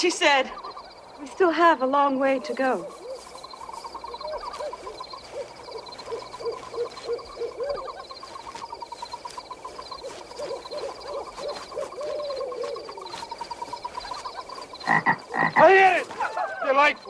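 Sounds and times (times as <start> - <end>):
pulsing chirr of night creatures: 0.0 - 17.0
short hooting calls: 0.0 - 17.0.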